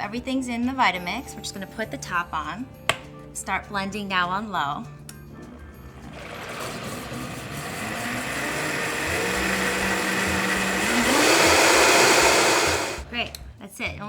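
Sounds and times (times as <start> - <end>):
blender motor blending: 5.8 - 13.1.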